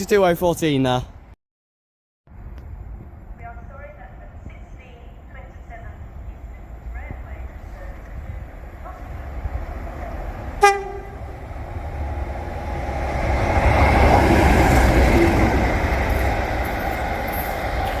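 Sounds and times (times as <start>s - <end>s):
train rushing past: 3.2s - 18.0s
train horn toot: 10.6s - 11.4s.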